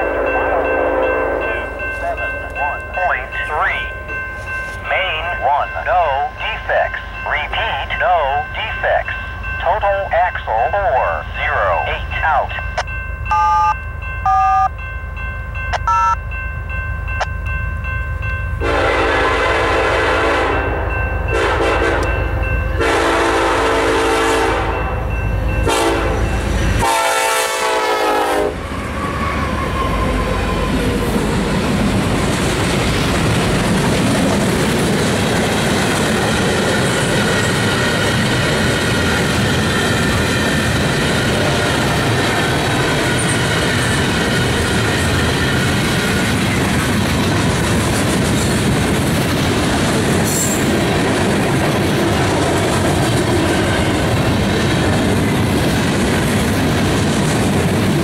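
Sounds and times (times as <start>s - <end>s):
train horn long blasts: 0.0s - 1.7s, 18.6s - 22.2s, 22.8s - 25.0s, 25.6s - 29.0s
train rumbling past: 0.0s - 58.0s
train wheels clickety-clack: 31.2s - 58.0s.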